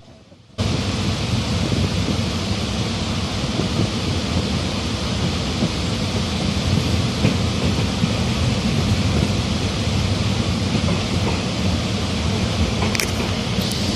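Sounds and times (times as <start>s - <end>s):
train rumble: 0.0s - 13.9s
rushing noise: 12.3s - 13.9s.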